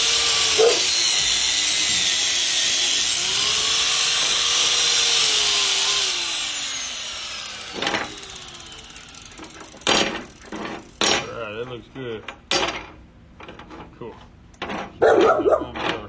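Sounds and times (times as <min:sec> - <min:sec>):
angle grinder wire brush scrubbing: 0:00.0 - 0:10.9.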